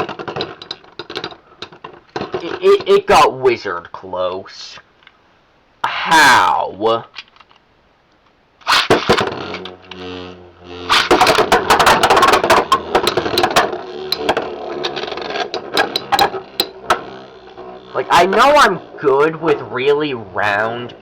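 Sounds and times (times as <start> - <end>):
spinning tops clashing and rattling: 0.0 - 2.8, 8.6 - 19.0
spinning top launcher whirr: 8.6 - 21.0.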